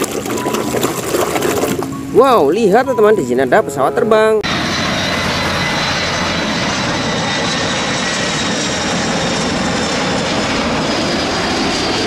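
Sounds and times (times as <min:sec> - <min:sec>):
faint high jet whine: 0:00.2 - 0:12.0
jet engine rushing: 0:04.4 - 0:12.0.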